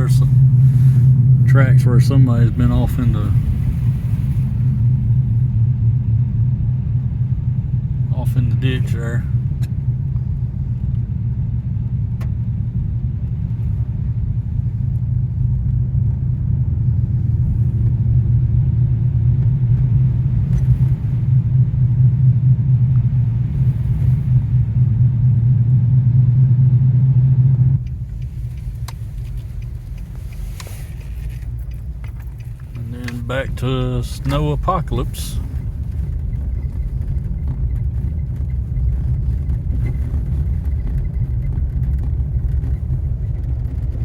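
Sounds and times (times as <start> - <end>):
car engine and tyre rumble: 0.0 - 44.0.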